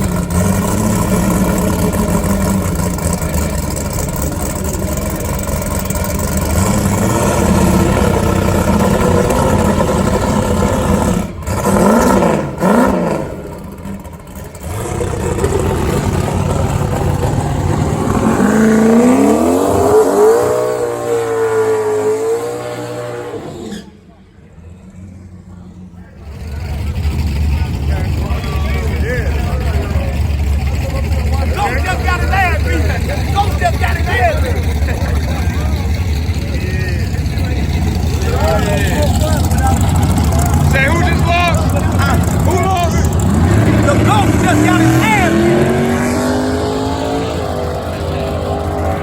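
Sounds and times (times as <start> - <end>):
drag race car engine revving: 0.0 - 49.0.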